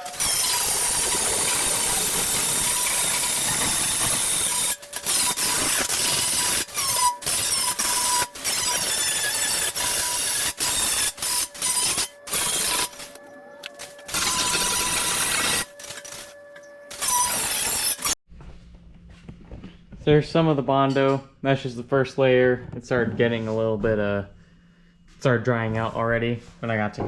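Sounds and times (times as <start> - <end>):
power grinder grinding metal: 0.0 - 18.2.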